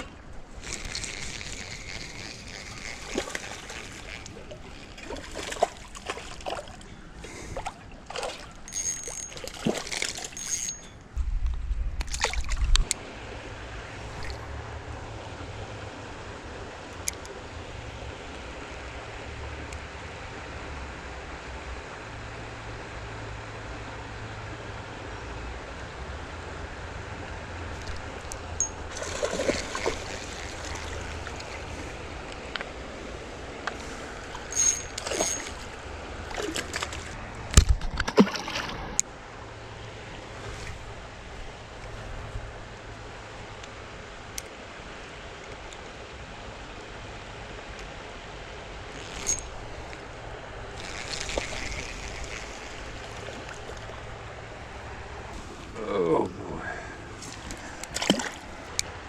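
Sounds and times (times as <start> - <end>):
water splashing: 0.0 - 10.6, 27.7 - 39.0, 50.7 - 55.8, 57.2 - 58.8
steady rush of water: 0.0 - 11.0, 12.1 - 59.0.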